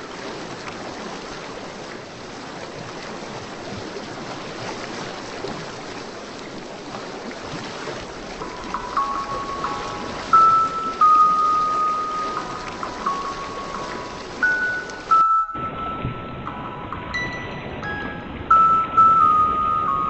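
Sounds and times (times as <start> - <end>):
rushing water: 0.0 - 20.0
sustained musical tones: 8.4 - 20.0.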